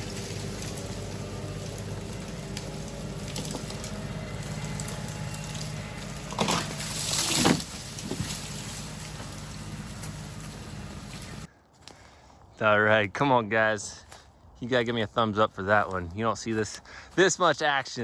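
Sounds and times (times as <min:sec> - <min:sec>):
tractor diesel engine under load: 0:00.0 - 0:11.5
tree crashing down: 0:00.0 - 0:11.5.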